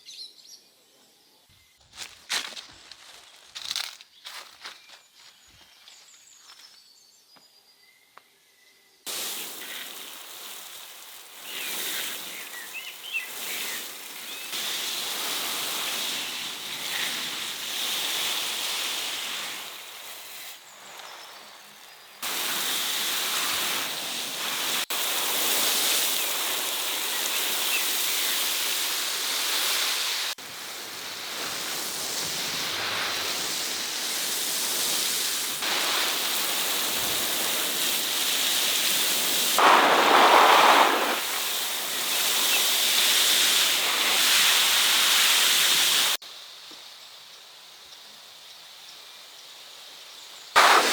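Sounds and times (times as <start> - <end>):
rushing water: 9.1 - 21.2, 22.2 - 46.2.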